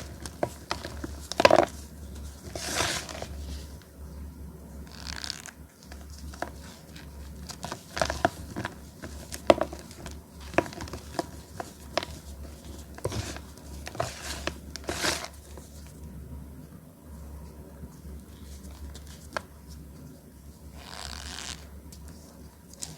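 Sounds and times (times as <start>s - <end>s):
soft crumbling: 0.0s - 3.9s, 5.1s - 16.0s.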